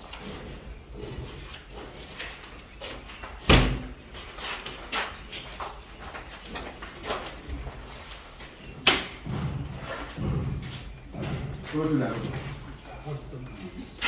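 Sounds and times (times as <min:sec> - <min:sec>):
light knocks and clatter: 0:04.6 - 0:13.9.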